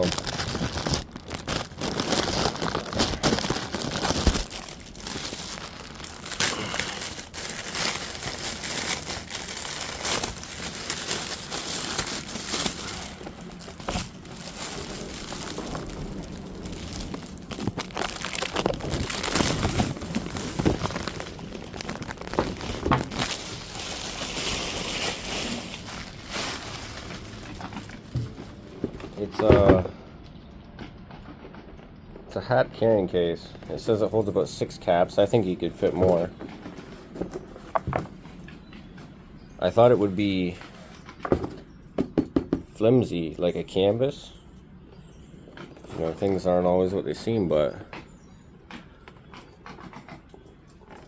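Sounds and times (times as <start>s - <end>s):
packaging crinkling and rustling: 0.0s - 29.9s.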